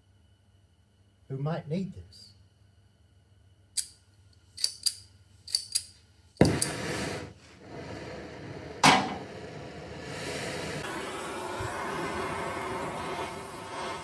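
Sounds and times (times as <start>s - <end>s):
loud metallic bang: 8.8s - 9.3s.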